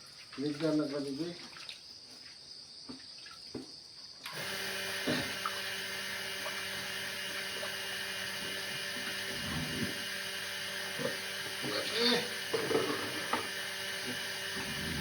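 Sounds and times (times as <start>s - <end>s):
electric machine humming: 4.3s - 15.0s.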